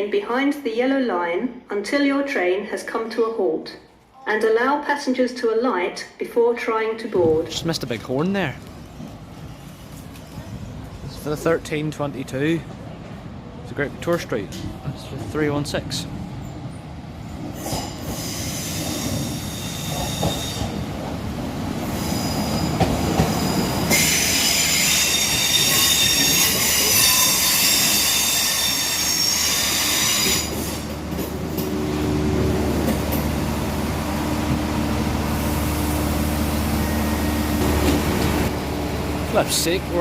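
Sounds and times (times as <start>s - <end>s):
train brakes squealing: 17.6s - 20.9s, 21.8s - 30.9s
diesel engines humming: 30.8s - 40.0s.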